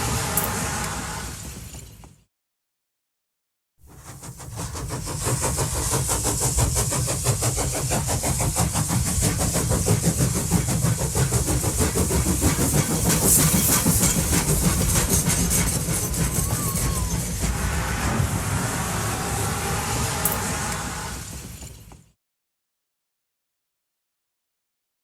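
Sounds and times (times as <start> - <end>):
train running: 0.0 - 2.3, 3.8 - 22.2.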